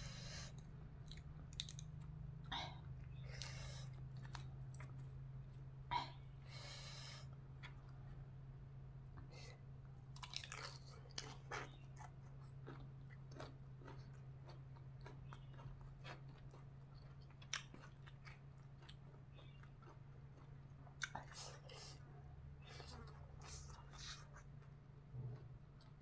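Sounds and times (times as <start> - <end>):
person crunching food: 0.0 - 5.7, 10.0 - 22.0
steady low hum: 0.0 - 26.0.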